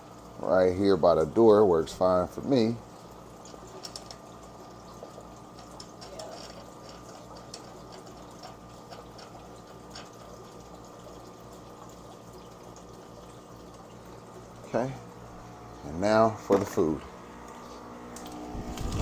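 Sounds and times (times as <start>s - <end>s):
water moving through pumps: 0.0s - 19.0s
electric hum: 12.8s - 19.0s.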